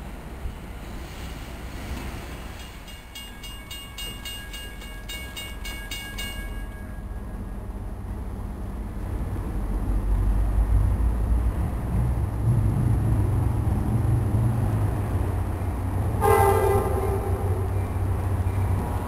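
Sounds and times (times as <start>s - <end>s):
train rumble: 0.0s - 19.0s
train horn: 16.2s - 17.8s.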